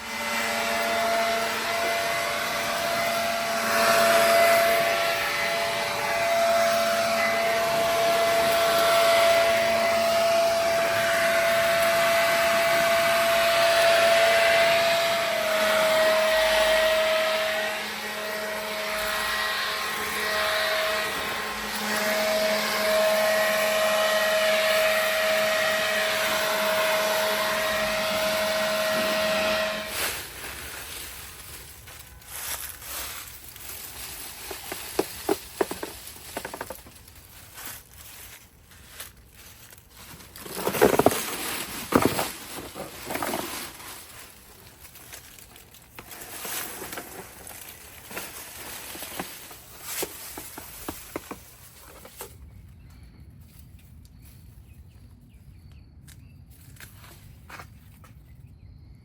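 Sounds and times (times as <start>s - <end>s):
small electric motor whining: 0.0s - 38.3s.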